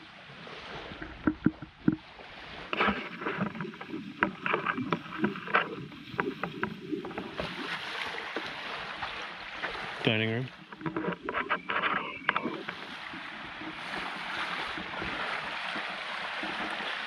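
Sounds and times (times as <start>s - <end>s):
gear knocking against a kayak: 0.9s - 2.1s, 2.7s - 8.6s, 10.5s - 17.0s.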